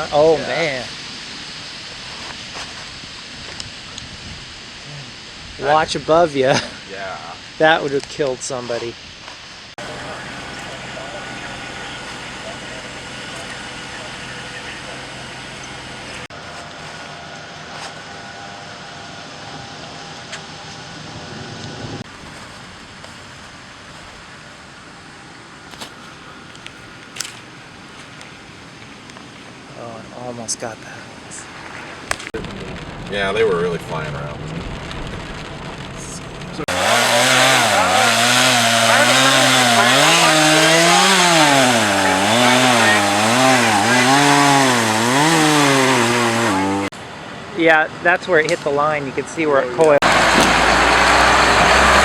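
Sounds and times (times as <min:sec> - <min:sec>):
steady hiss: 0:00.0 - 0:16.4
chainsaw engine at high revs: 0:09.8 - 0:16.3, 0:36.6 - 0:46.9, 0:50.0 - 0:52.0
vehicle running noise inside: 0:09.8 - 0:22.1, 0:49.9 - 0:52.0
low rumble: 0:32.4 - 0:36.7.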